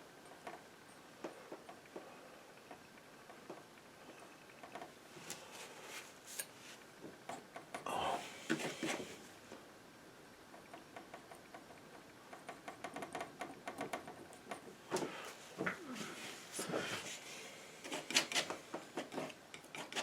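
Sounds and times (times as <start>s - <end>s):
painting knife scraping: 17.8s - 20.0s.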